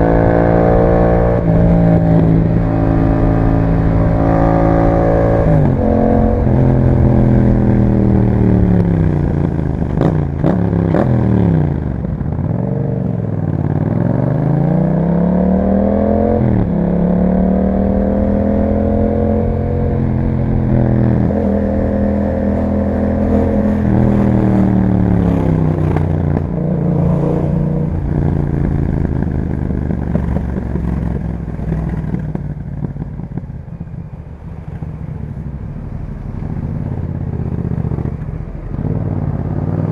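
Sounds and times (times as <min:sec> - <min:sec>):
exhaust cracks: 0:00.0 - 0:12.6, 0:16.4 - 0:39.9
motorcycle engine revving: 0:00.0 - 0:39.9.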